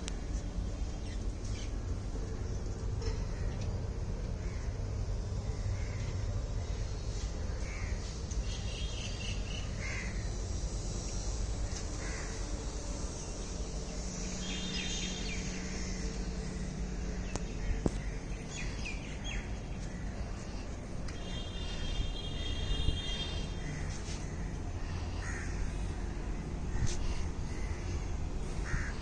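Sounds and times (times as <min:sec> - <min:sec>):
low background rumble: 0:00.0 - 0:29.0
birds chirping: 0:05.5 - 0:24.0.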